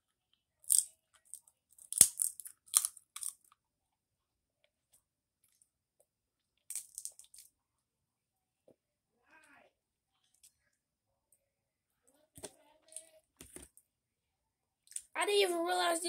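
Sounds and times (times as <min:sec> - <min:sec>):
person chewing and biting food: 0:00.7 - 0:03.4.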